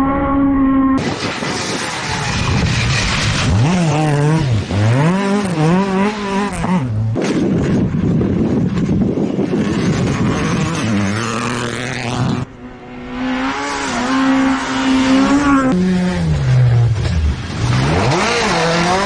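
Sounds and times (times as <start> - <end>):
rally car engine revving: 0.0 - 19.0
loud noisy rush: 1.0 - 5.8.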